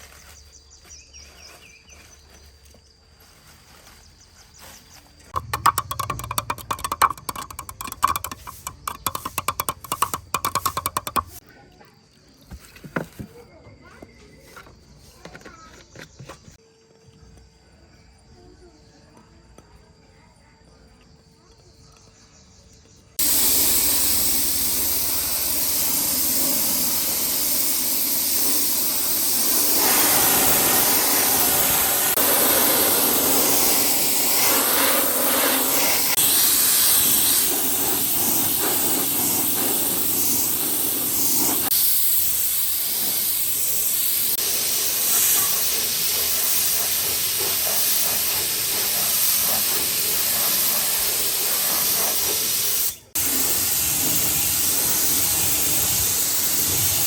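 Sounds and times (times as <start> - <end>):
compressed-air tool hissing: 5.4 - 11.4, 23.2 - 57.0.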